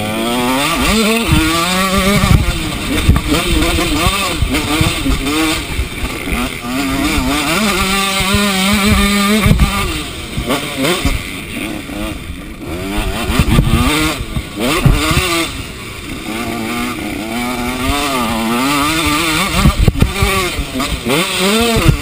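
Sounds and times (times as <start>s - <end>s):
motocross bike engine revving: 0.0s - 22.0s
sharp thump: 1.3s - 5.3s, 8.2s - 9.8s, 14.7s - 15.3s.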